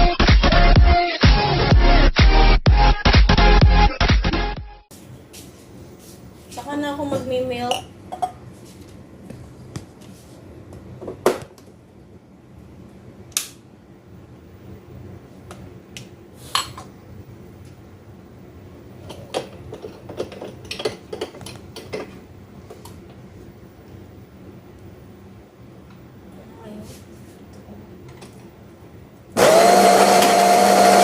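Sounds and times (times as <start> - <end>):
cups and dishes clinking: 7.7 - 8.4.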